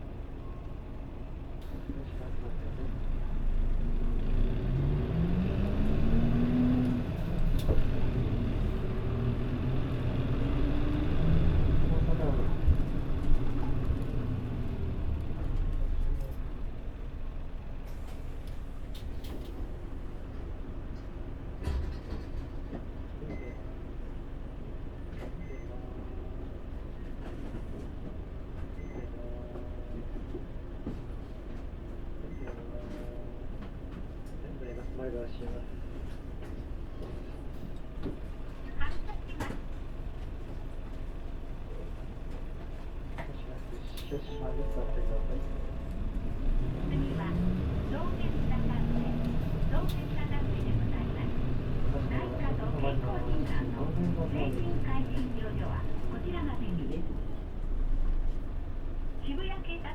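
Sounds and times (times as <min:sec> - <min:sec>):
bus diesel engine accelerating: 0:00.0 - 0:32.5, 0:33.2 - 0:59.9
faint electronic beep: 0:25.4 - 0:25.9, 0:43.9 - 0:46.4.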